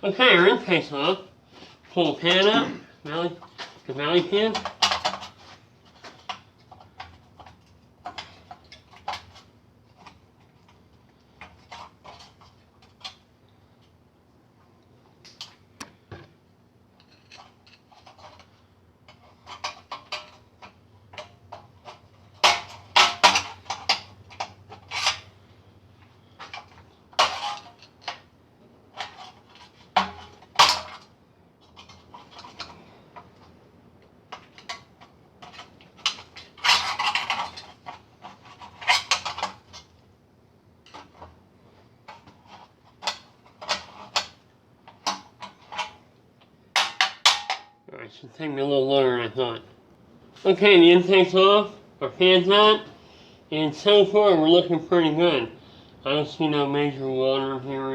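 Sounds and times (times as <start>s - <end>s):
metal parts and tools clanking: 17.0s - 25.4s, 26.4s - 28.3s, 28.9s - 33.3s, 34.3s - 39.9s.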